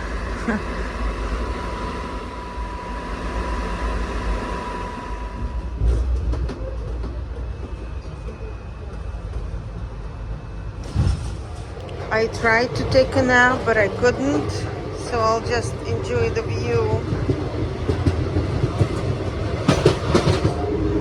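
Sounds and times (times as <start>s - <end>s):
thin whine: 0.0s - 6.6s
train carriage rumble: 0.0s - 21.0s.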